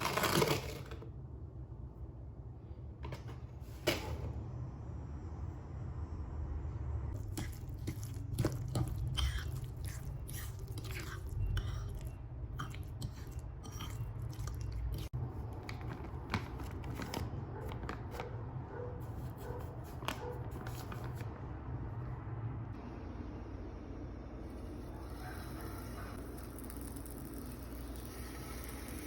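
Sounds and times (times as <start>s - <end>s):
person chewing crunchy food: 7.2s - 15.2s.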